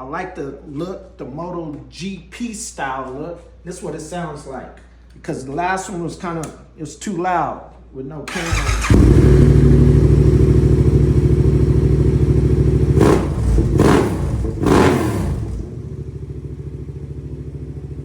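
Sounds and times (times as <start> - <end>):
motorcycle engine idling: 8.4 - 18.0.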